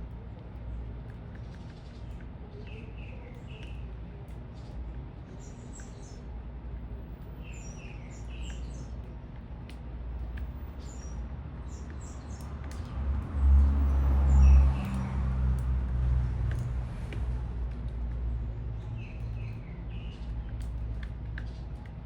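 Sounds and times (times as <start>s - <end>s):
low traffic rumble: 0.0s - 22.0s
small birds chirping: 0.1s - 22.0s
vehicle passing: 12.4s - 19.0s.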